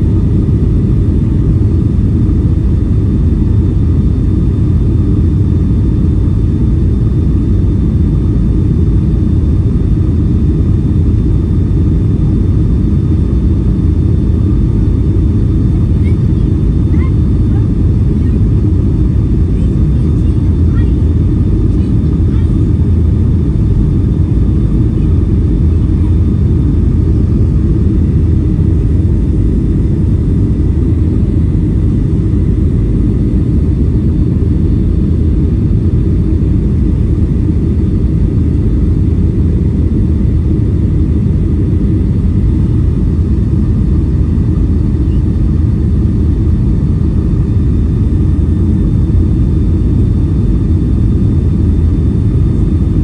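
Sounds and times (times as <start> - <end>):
airliner cabin engine roar: 0.0 - 53.0.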